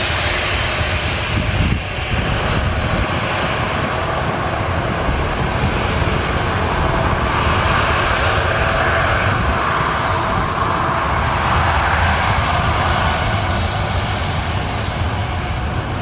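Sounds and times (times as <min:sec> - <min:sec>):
airliner engines running: 0:00.0 - 0:16.0.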